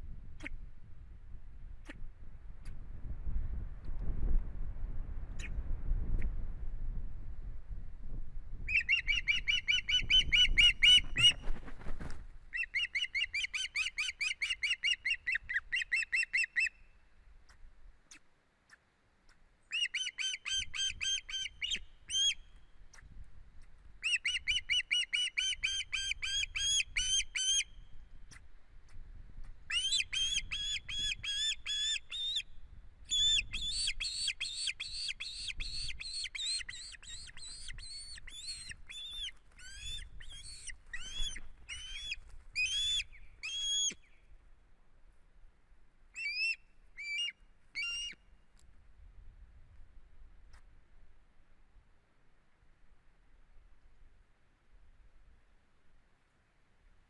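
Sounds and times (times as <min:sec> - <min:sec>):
osprey high whistled chirps: 0:46.2 - 0:48.2.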